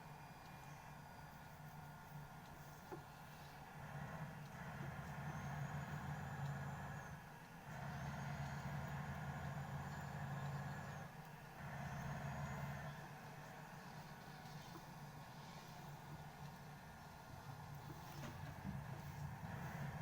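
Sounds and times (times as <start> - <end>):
faint high whine: 0.0 - 20.0
car engine and road noise: 3.8 - 14.3.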